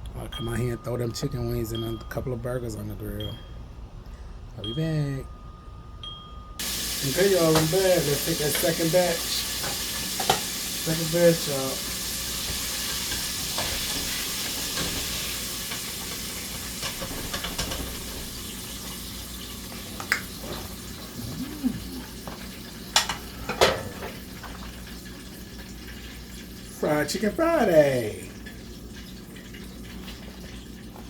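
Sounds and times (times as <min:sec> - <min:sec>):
chicken frying in hot grease: 0:06.6 - 0:31.0.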